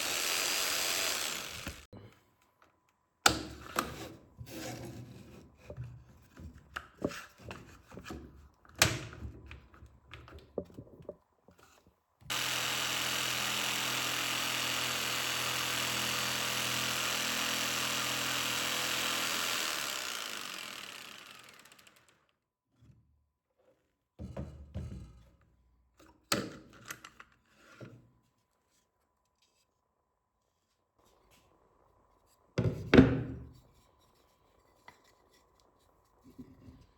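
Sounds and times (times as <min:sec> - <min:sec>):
power tool motor running: 0:00.0 - 0:01.9, 0:12.3 - 0:22.2.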